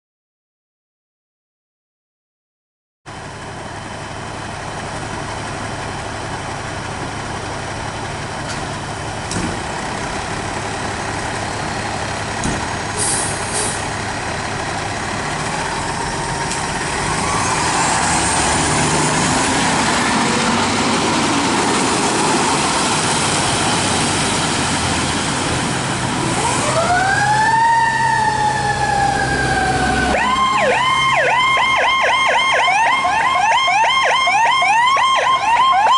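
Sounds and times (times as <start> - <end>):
fire truck diesel engine: 3.1 - 35.9
electronic siren wail and yelp: 26.4 - 35.9.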